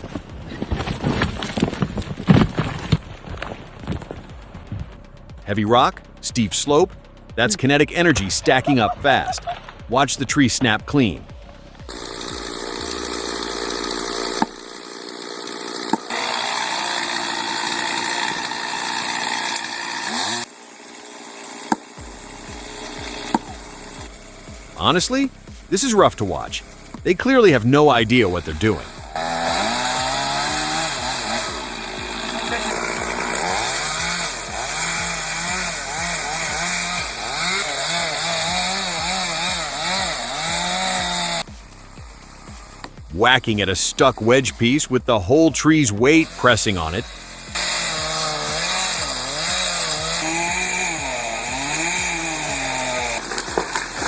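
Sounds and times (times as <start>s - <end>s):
chainsaw cutting at high revs: 11.1s - 54.0s.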